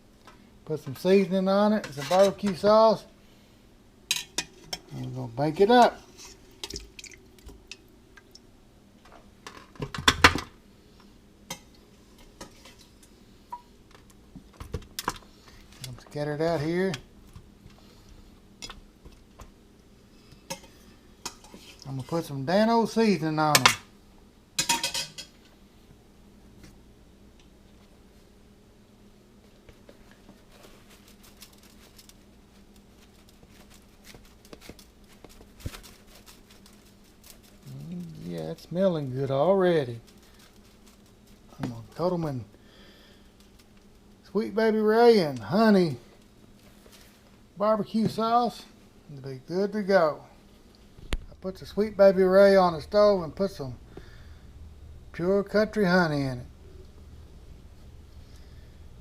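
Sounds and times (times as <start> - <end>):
faint steady hum: 0.0 - 59.0
utensils and dishes clinking: 24.6 - 25.4.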